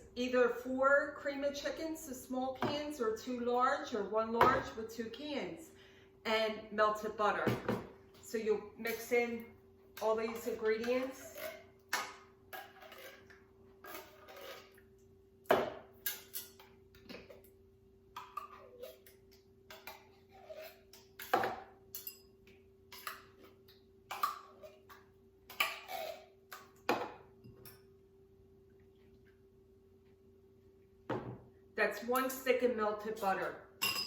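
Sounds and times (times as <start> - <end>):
utensil scraping a dish: 12.6 - 14.8.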